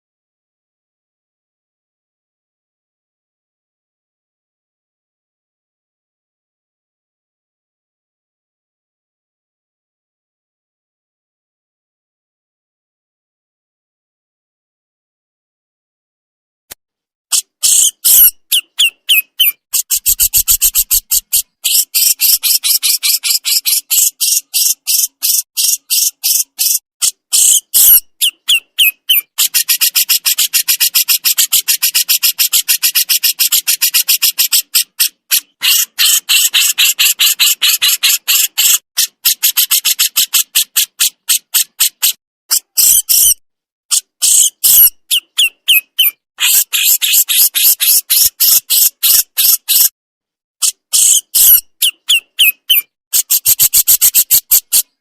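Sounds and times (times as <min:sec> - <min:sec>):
bird harsh rasping call: 0:17.3 - 0:49.9, 0:50.7 - 0:55.0.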